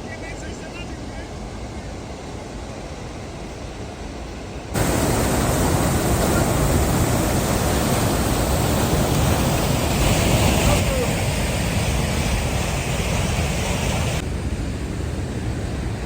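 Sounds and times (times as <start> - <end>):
waterfall roaring: 4.8 - 14.2.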